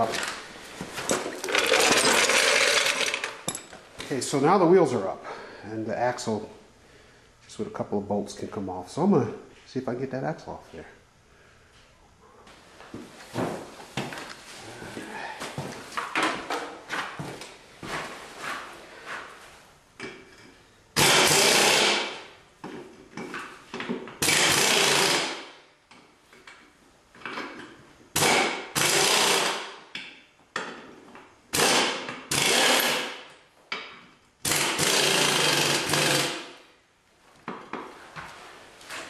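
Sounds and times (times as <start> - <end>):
clatter of parts: 0.0 - 3.8
impact wrench bursts: 1.2 - 3.6, 21.0 - 22.3, 24.2 - 25.6, 28.1 - 29.8, 31.5 - 33.3, 34.4 - 36.6.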